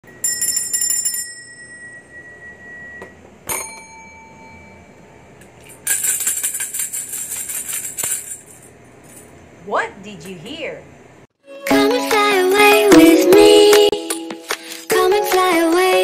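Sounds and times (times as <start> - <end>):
bell ding: 0.2 - 5.1.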